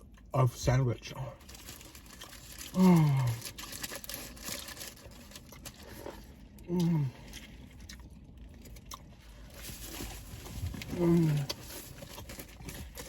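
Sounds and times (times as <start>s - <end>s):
person making short vocal sound: 6.7s - 7.1s, 10.9s - 11.5s.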